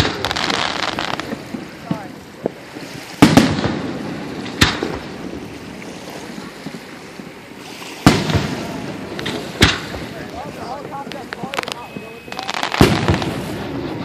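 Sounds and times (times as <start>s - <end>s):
fireworks bursting: 0.0s - 5.8s, 8.0s - 14.0s.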